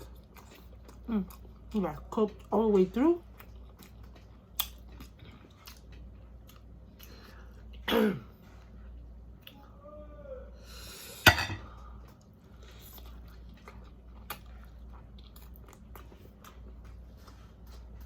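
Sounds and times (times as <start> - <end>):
close chewing and mouth sounds: 0.0 - 9.8, 11.8 - 18.0.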